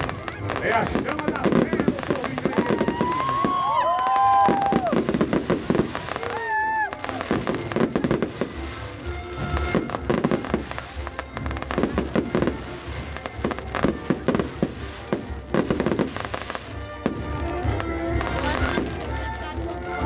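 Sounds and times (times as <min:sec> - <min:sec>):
fireworks cracks and bangs: 0:00.0 - 0:20.0
music playing: 0:00.0 - 0:20.0.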